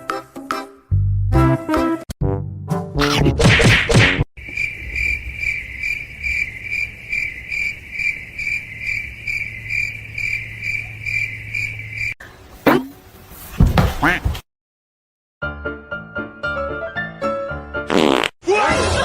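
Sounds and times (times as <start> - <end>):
insect chirping trill: 4.4 - 12.2.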